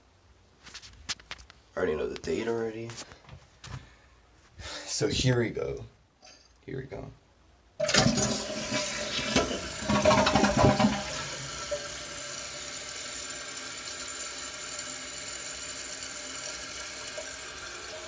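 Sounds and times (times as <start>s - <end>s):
toilet flushing: 7.8s - 18.0s.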